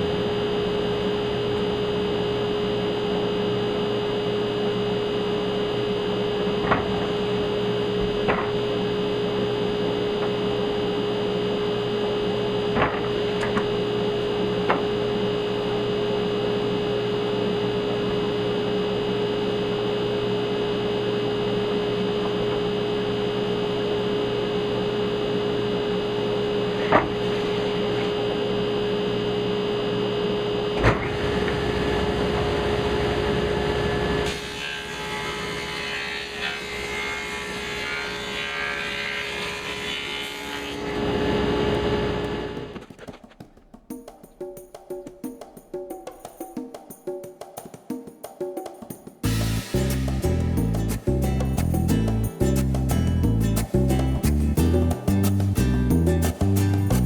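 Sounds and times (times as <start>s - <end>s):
electric machine hum: 0.0s - 42.9s.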